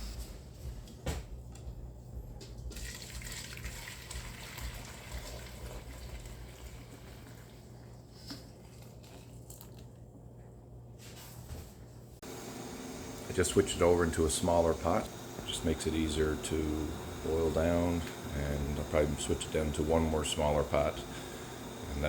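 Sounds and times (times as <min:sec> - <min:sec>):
steady low hum: 0:00.0 - 0:02.8, 0:09.9 - 0:22.0
sap bubbling in a pot: 0:02.7 - 0:09.2, 0:12.2 - 0:22.0.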